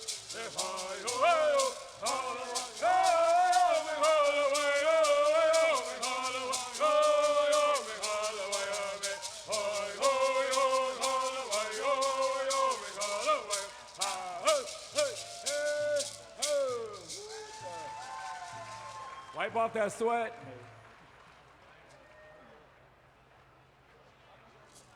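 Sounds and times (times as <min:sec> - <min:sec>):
men singing: 0:00.0 - 0:17.8
gourd rattles shaking: 0:00.0 - 0:19.4.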